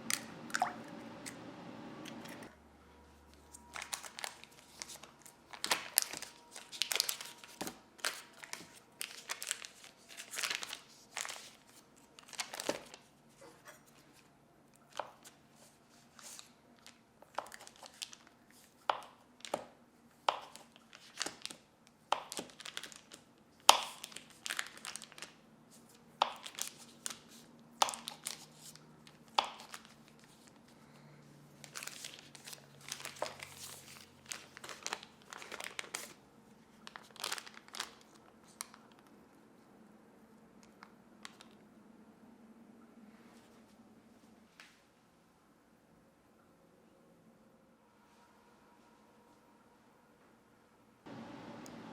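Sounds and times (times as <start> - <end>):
paper crinkling: 3.2 - 19.6, 20.4 - 30.7, 31.6 - 39.1.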